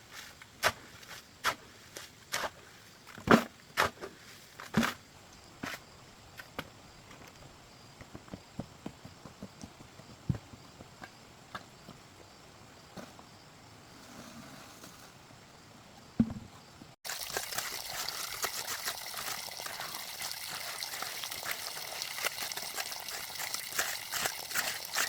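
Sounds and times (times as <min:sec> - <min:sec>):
sharp knocks and thuds: 0:16.2 - 0:16.7.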